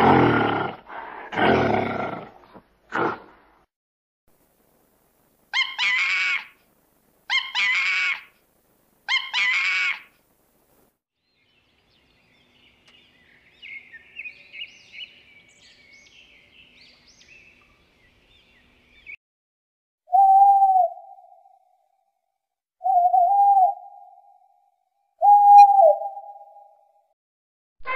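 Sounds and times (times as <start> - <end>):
sparrow chirping: 11.2 - 19.2
steady hoot: 20.1 - 21.5, 22.8 - 24.2, 25.2 - 26.7.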